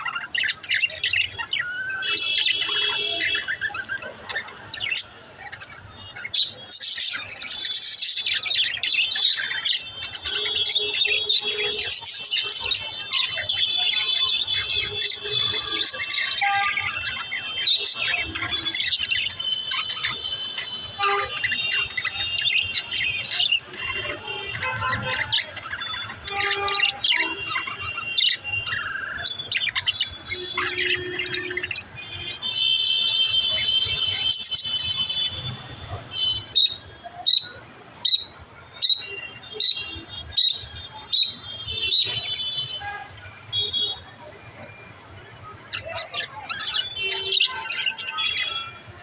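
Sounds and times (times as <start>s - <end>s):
budgerigars chirping and squawking: 0.0s - 49.0s.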